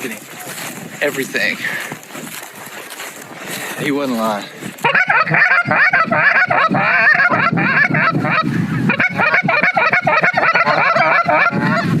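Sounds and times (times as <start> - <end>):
geese honking: 4.8 - 12.0.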